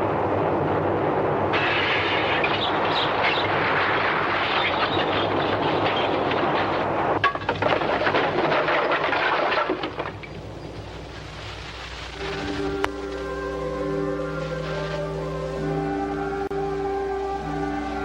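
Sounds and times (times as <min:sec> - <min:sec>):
earthquake rumbling roar: 0:00.0 - 0:11.4
rattling and clinking debris: 0:01.6 - 0:12.8.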